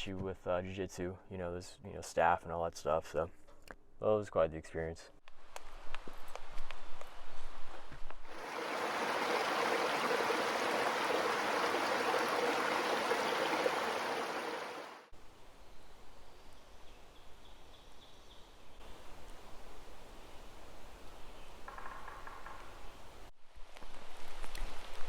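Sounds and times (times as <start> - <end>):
rushing water: 8.3 - 15.1.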